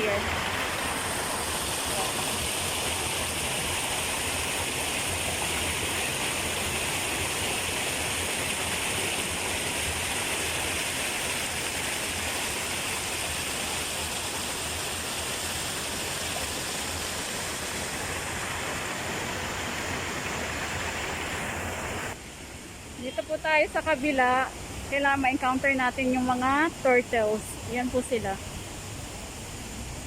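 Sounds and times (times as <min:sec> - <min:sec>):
waterfall rushing: 0:00.0 - 0:22.2.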